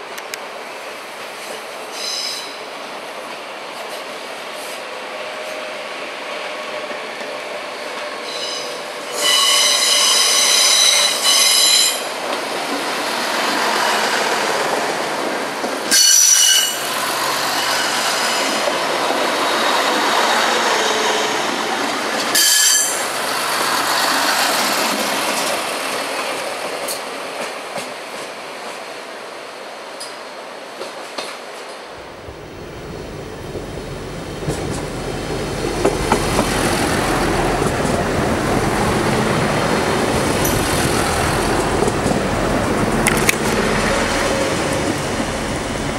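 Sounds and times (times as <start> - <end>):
diesel railcar running past: 0.0 - 28.9, 30.8 - 45.9
high-pitched wheel squeal: 8.2 - 12.0.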